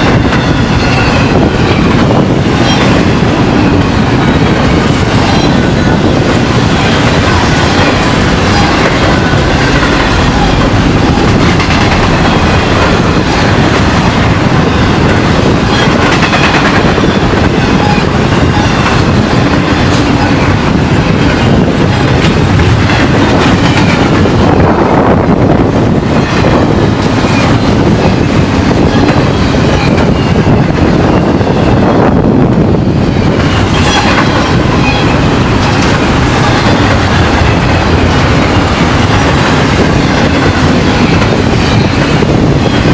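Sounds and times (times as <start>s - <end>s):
wheels clacking over rail joints: 0.0s - 24.6s
train cars rumbling past: 0.0s - 42.9s.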